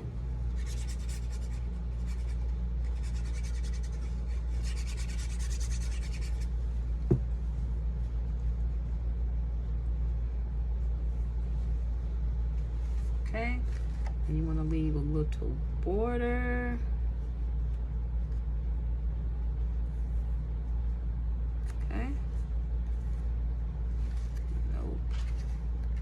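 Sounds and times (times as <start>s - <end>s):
steady low rumble: 0.0s - 26.0s
scratchy strokes on paper: 0.5s - 6.6s.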